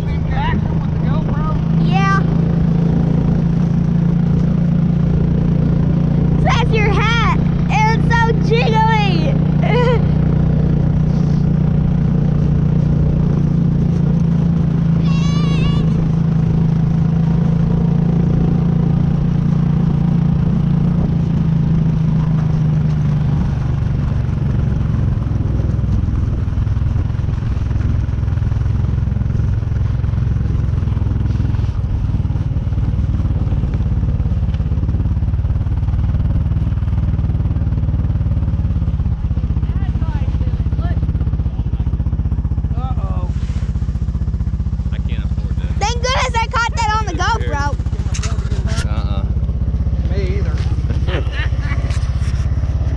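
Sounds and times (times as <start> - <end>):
atv engine running: 0.0 - 52.9
high wavering voice crying out: 15.0 - 16.1.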